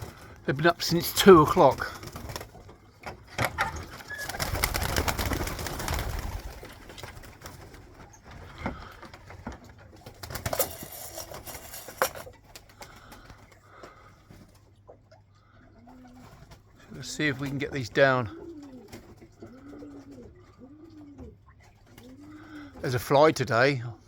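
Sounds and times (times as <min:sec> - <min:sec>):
pigeons cooing: 0:00.0 - 0:22.8
rustling noise: 0:10.5 - 0:12.3.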